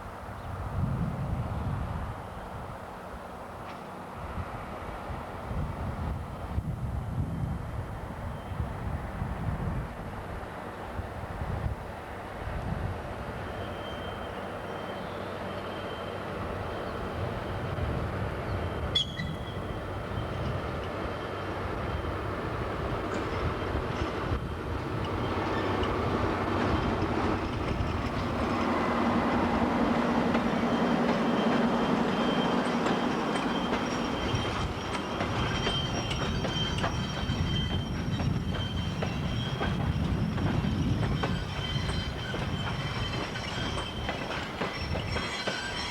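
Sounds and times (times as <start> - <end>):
train engine drone: 0.0 - 45.9
high wheel squeal: 13.4 - 17.6, 18.5 - 22.2, 23.1 - 29.0, 30.0 - 45.9
wheels running on rails: 23.8 - 45.9.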